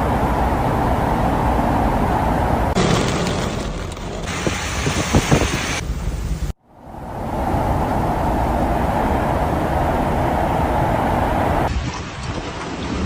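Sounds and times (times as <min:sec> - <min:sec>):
heavy rain: 0:00.0 - 0:05.8
road traffic: 0:00.0 - 0:11.8.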